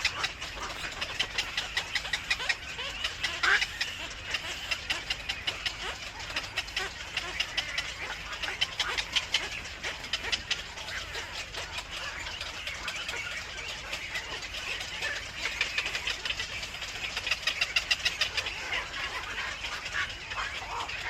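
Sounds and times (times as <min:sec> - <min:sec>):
birds chirping: 0:00.0 - 0:21.0
low steady hum: 0:00.0 - 0:21.0.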